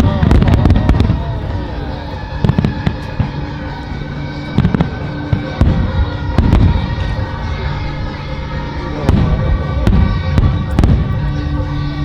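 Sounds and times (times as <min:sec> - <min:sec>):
fireworks booming: 0:00.0 - 0:03.6, 0:04.3 - 0:07.9, 0:08.6 - 0:12.0
fireworks cracking: 0:00.0 - 0:03.6
music with long held notes: 0:00.0 - 0:12.0.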